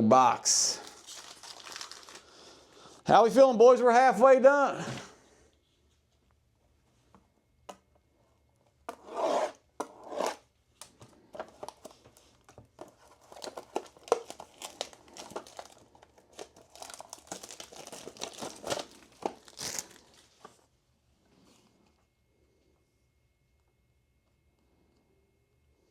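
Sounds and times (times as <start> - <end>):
wrapper and cardboard crinkling: 0.5 - 2.7, 11.4 - 20.6
plastic shrink wrap tearing: 0.7 - 2.4, 13.1 - 20.3.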